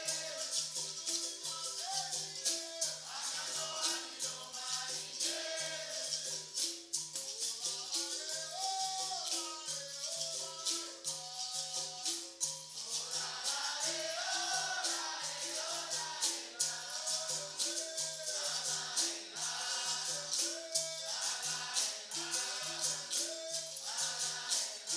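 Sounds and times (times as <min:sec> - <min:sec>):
group of voices singing: 0:00.0 - 0:06.8, 0:07.4 - 0:24.9
shakers rattling: 0:00.0 - 0:24.9
tambourine jingles: 0:00.0 - 0:24.9.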